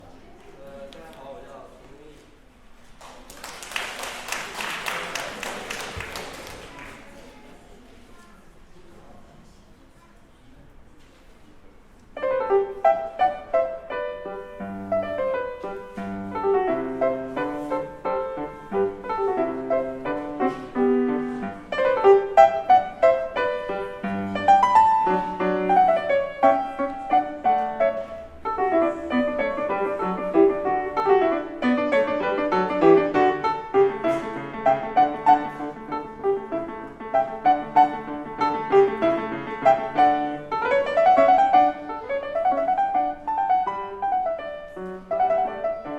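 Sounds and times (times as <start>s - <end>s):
classical piano piece: 12.0s - 45.9s.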